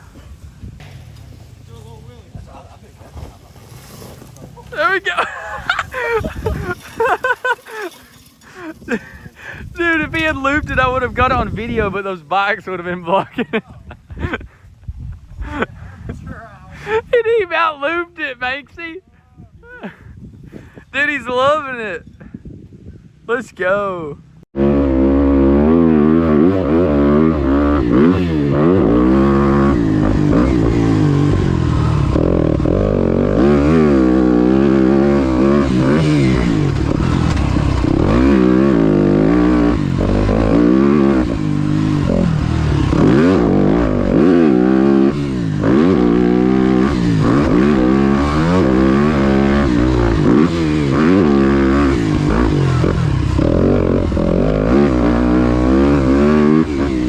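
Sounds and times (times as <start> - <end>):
dirt bike engine revving: 3.2 - 13.2, 24.6 - 57.0.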